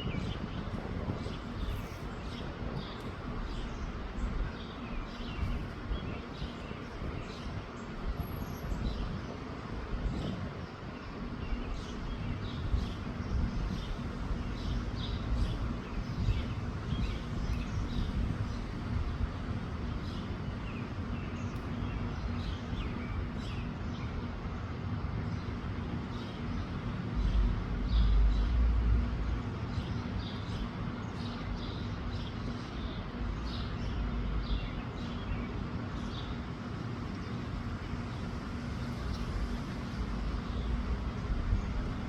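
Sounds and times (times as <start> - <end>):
wind buffeting microphone: 0.0 - 23.4, 37.6 - 42.0
small birds chirping: 0.0 - 42.0.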